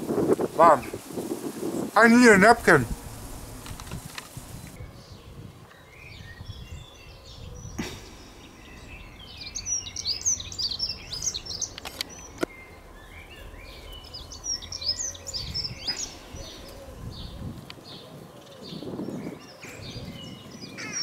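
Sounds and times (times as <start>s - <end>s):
low outdoor rumble: 0.0s - 4.8s, 8.0s - 17.8s
songbird chirping: 0.0s - 21.0s
sharp clicks: 11.2s - 12.6s.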